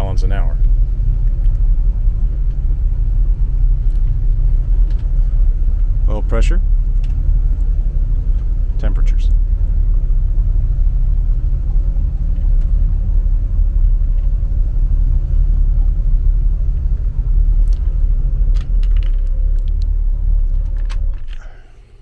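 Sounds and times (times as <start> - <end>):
boat engines rumbling: 0.0 - 22.0
sharp clicks and light rattles: 0.6 - 1.7, 3.8 - 5.2, 5.8 - 9.4, 17.5 - 22.0.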